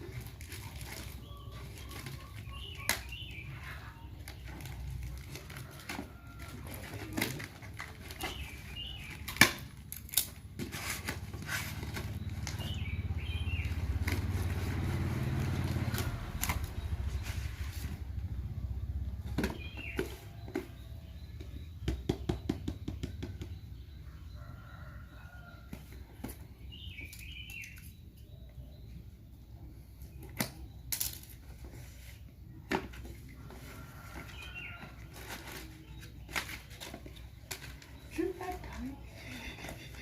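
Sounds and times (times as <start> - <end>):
objects rustling and clicking: 0.0 - 18.2, 30.2 - 40.0.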